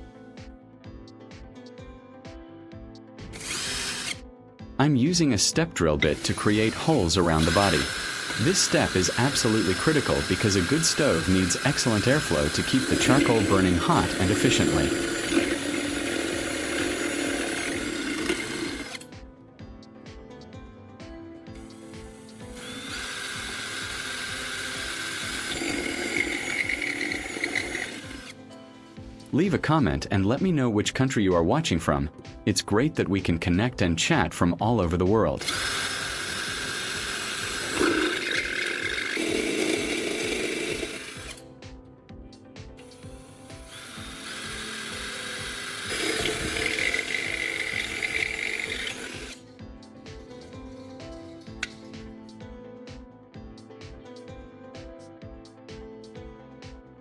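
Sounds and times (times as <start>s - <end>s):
background music with steady beat: 0.0s - 57.0s
power drill grinding metal: 3.2s - 4.3s, 6.0s - 19.2s, 21.5s - 29.3s, 35.4s - 41.5s, 42.8s - 52.4s.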